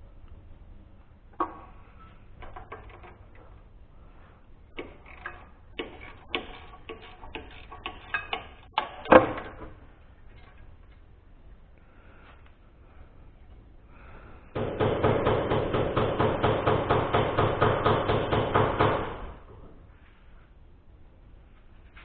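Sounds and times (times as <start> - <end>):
metal tools clinking and clanking: 4.8 - 9.6.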